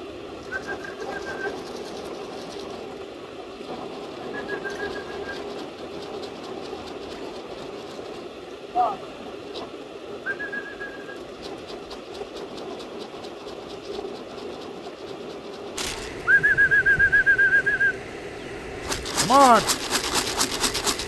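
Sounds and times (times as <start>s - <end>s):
pea whistle trilling: 15.8s - 20.4s.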